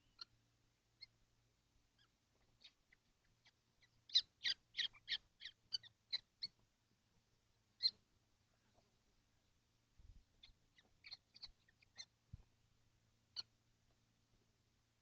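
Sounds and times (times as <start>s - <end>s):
kestrels calling: 0.0s - 0.4s, 2.0s - 6.6s, 7.8s - 8.0s, 10.4s - 12.2s.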